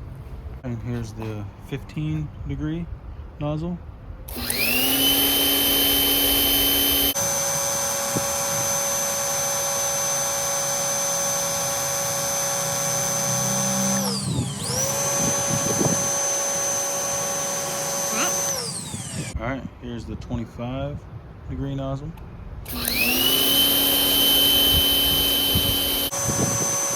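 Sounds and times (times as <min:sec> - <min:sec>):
pressure washer motor whining: 0:04.3 - 0:19.4, 0:22.7 - 0:26.9.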